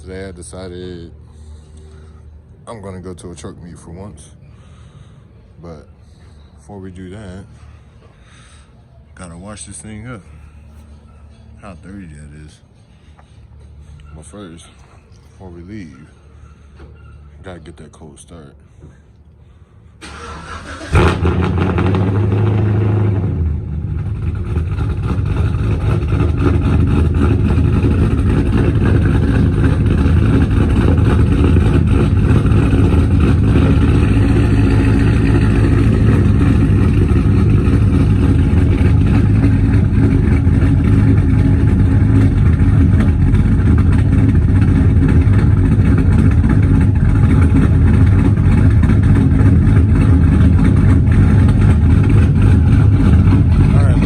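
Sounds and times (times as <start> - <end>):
pickup truck engine starting and idling: 20.0 - 54.0.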